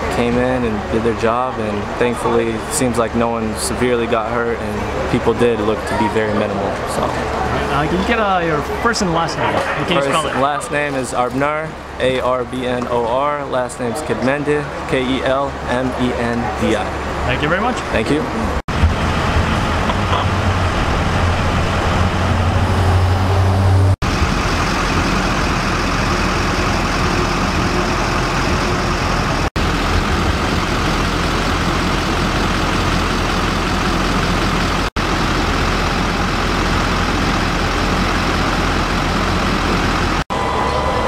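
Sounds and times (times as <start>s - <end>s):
truck engines idling: 0.0s - 41.0s
low hum: 18.3s - 41.0s.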